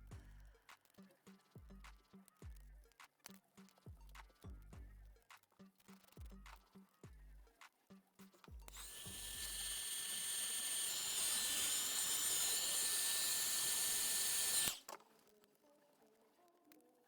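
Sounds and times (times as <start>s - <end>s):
small electric tool whining: 8.7s - 15.1s.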